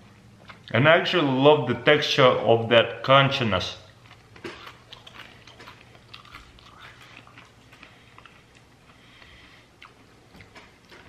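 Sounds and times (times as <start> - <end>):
crunchy chewing: 3.8 - 11.0.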